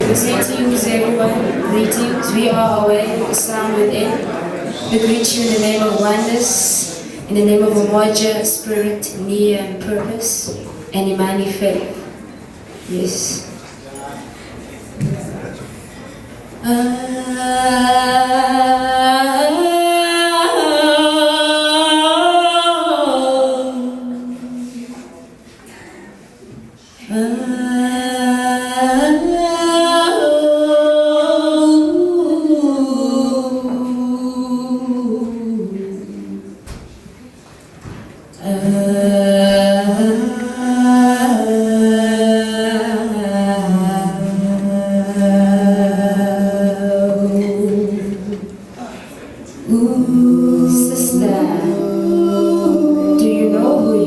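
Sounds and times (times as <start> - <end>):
person singing long held notes: 49.7 - 54.0.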